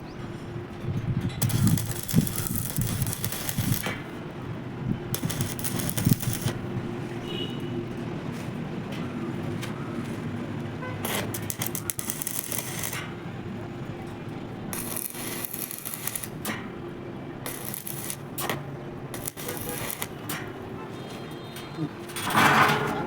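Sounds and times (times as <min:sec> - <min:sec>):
welding machine low hum: 0:00.4 - 0:07.2, 0:10.6 - 0:21.6
welding arc crackling and hissing: 0:01.4 - 0:04.1, 0:05.1 - 0:06.7, 0:11.0 - 0:13.1, 0:14.7 - 0:16.6, 0:17.4 - 0:20.4.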